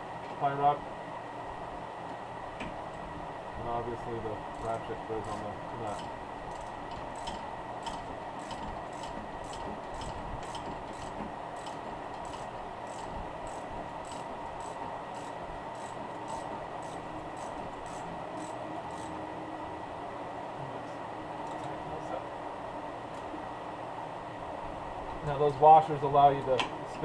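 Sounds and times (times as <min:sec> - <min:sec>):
steady hum: 0:00.0 - 0:27.0
ratchet and wrench scraping: 0:04.5 - 0:19.1.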